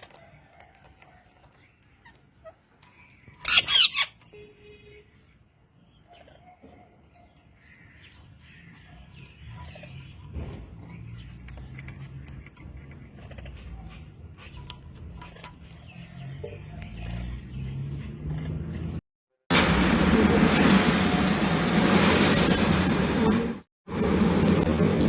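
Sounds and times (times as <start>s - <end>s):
parrot screeching: 3.4s - 4.2s.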